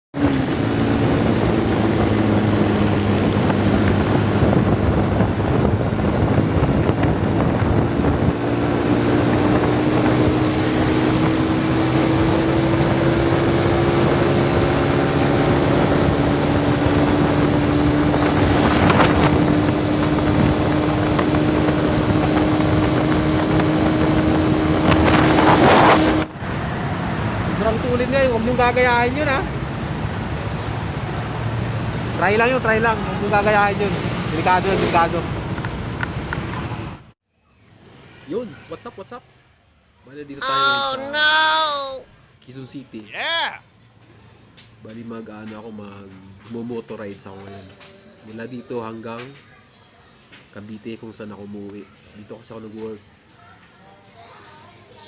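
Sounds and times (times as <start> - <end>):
wind buffeting microphone: 0.2 - 26.3.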